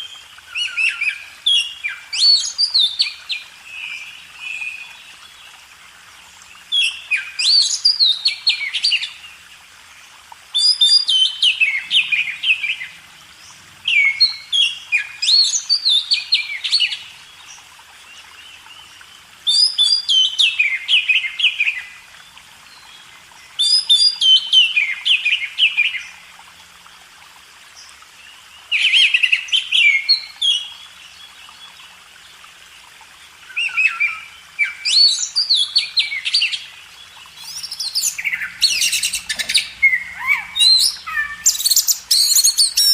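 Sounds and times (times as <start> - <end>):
bird singing whistled phrases: 37.4 - 42.9.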